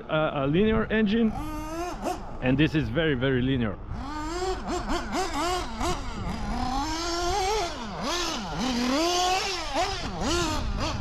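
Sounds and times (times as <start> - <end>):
rc car nitro engine revving: 1.3 - 2.5, 3.9 - 11.0.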